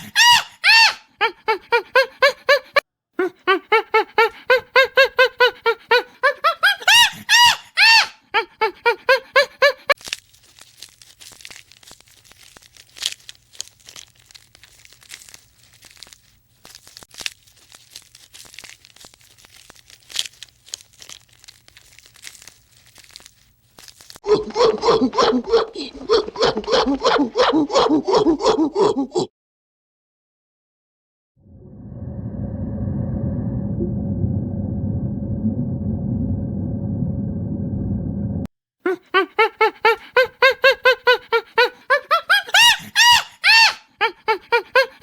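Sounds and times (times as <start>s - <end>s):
animal squeaky calls: 0.0s - 1.1s, 42.0s - 43.9s
crunching and crinkling: 9.9s - 24.2s.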